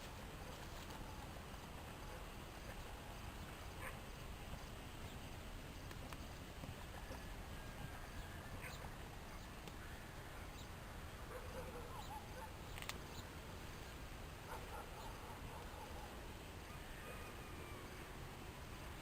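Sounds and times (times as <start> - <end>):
steady background hiss: 0.0 - 19.0
faint animal calls: 14.5 - 18.2.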